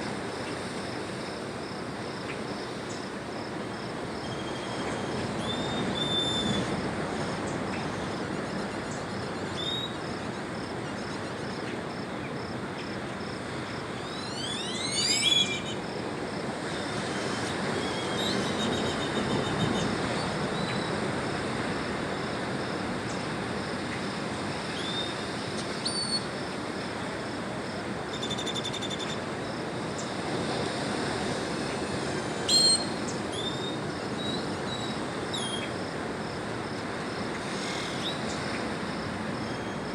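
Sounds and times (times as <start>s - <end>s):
sweeping bird call: 14.0s - 15.8s, 32.5s - 35.7s
steady rushing background noise: 29.1s - 39.9s.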